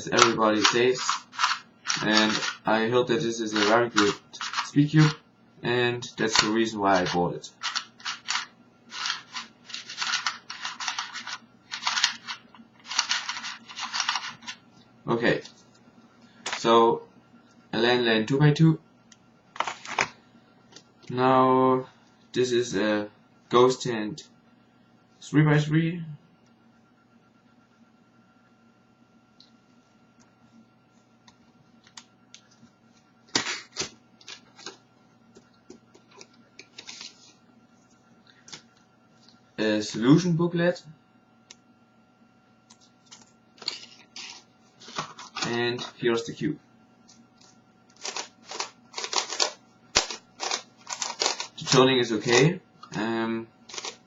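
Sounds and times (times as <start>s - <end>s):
packaging rustling: 0.0s - 2.7s, 3.4s - 5.2s, 6.2s - 14.6s, 43.1s - 45.6s, 47.4s - 51.8s, 53.7s - 54.0s
speed cube plastic clicking: 0.2s - 2.6s, 3.5s - 5.2s, 6.3s - 14.6s, 48.0s - 51.6s, 53.7s - 54.0s.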